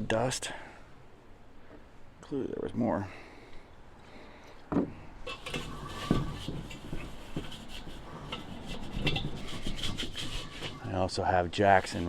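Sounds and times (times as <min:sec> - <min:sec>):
rag wiping metal bowl: 0:05.3 - 0:11.0, 0:11.7 - 0:12.0.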